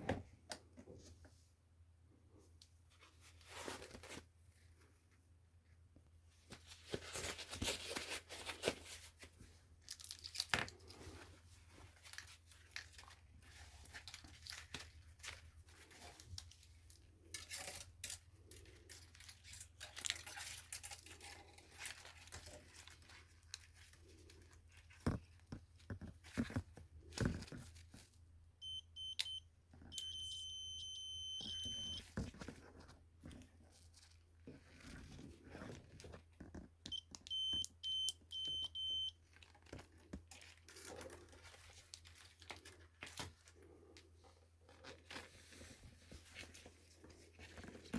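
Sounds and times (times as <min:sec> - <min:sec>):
handling parts and wires: 0:06.5 - 0:47.9
continuity tester beeping: 0:28.6 - 0:32.0, 0:36.9 - 0:39.2.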